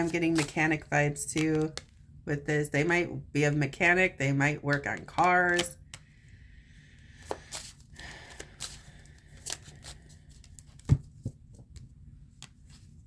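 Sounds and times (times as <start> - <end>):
cards clicking and snapping: 4.7 - 6.1, 7.2 - 12.6.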